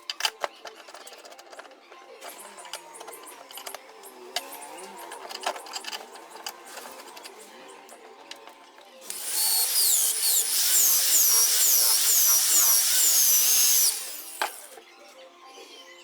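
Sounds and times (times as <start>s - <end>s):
electric drill whining: 9.0s - 14.8s.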